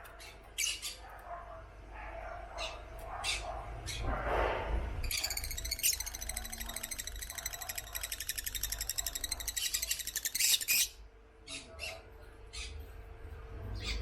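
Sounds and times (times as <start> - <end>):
lovebirds chattering: 0.0 - 1.0, 5.0 - 12.8.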